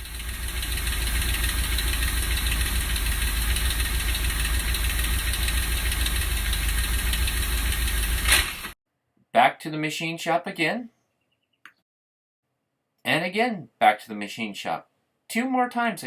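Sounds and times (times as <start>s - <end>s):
rough car engine rumble: 0.0s - 8.8s.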